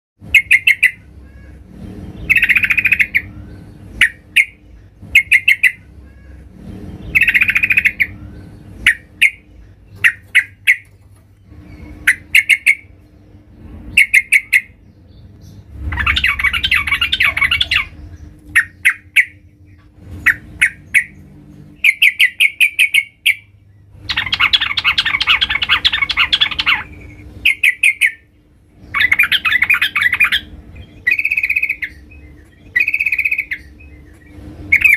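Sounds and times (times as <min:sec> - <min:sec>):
bird chirping: 0:00.2 - 0:34.9
bird harsh chattering: 0:00.3 - 0:03.3, 0:04.0 - 0:06.5, 0:08.8 - 0:10.9, 0:11.8 - 0:12.9, 0:13.9 - 0:14.8, 0:15.9 - 0:19.4, 0:21.8 - 0:23.5, 0:24.1 - 0:28.3, 0:28.9 - 0:32.1.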